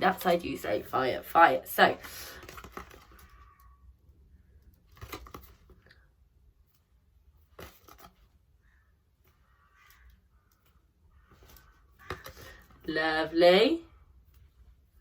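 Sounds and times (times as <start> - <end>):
paper-like rustling: 2.0 - 3.5.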